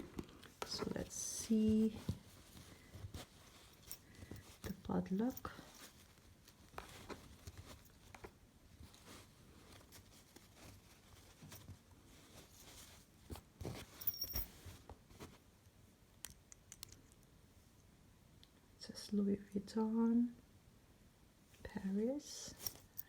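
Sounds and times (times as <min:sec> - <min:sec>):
faint rustling and clicks: 0:00.0 - 0:18.6
light metallic clink: 0:14.0 - 0:14.5.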